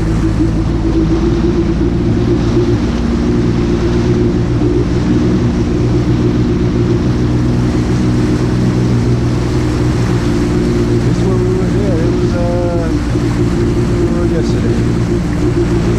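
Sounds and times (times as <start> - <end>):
jet ski engine droning: 0.0 - 15.9.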